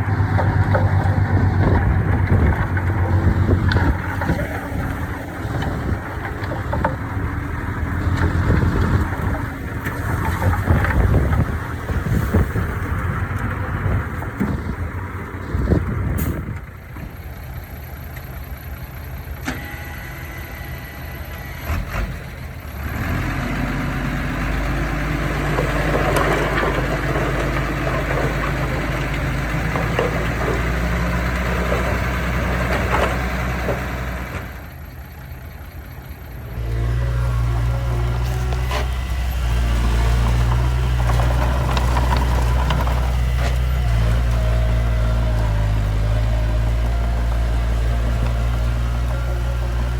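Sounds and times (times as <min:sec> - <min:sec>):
diesel machinery engines running: 0:00.0 - 0:49.9.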